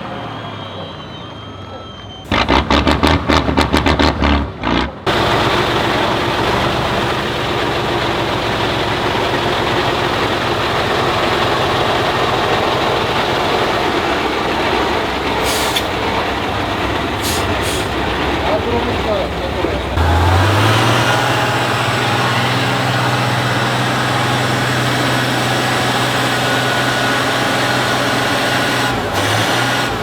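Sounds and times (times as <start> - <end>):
truck diesel engine droning: 0.0 - 30.0
air brakes hissing: 15.4 - 16.1, 17.1 - 18.1.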